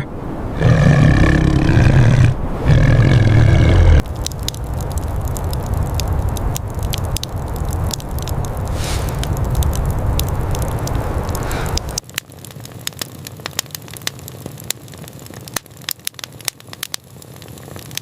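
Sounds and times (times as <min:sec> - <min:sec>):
steady crackling with hiss: 0:00.0 - 0:18.0
large animal growling: 0:00.6 - 0:04.0.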